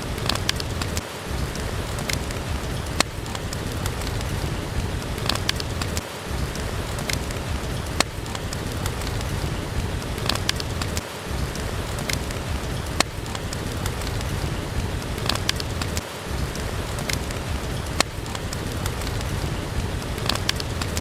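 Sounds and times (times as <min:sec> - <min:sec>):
steady rain: 0:00.0 - 0:21.0
wood fire crackling: 0:00.0 - 0:21.0.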